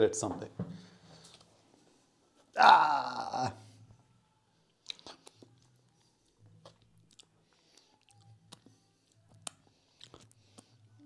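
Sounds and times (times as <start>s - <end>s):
soft wet chewing: 4.6s - 11.0s.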